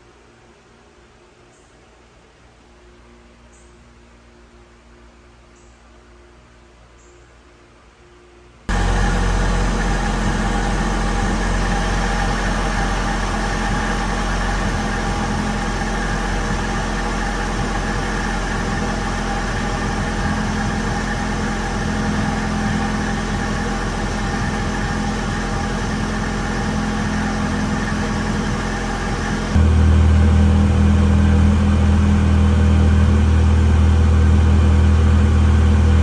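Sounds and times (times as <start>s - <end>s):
car engine idling: 8.7s - 36.0s.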